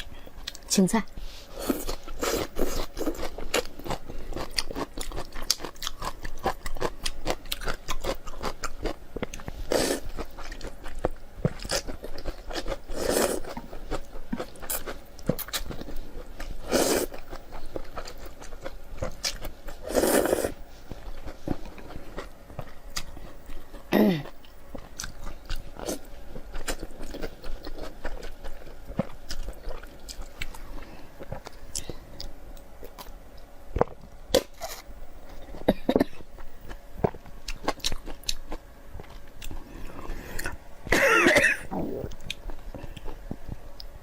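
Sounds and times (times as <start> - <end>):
person chewing and crunching food: 0.0 - 44.0
longer mouth sounds: 41.6 - 43.1.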